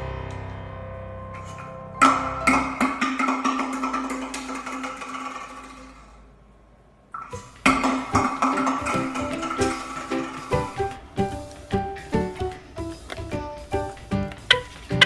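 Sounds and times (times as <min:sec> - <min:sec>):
plucked and struck music: 0:07.3 - 0:15.0.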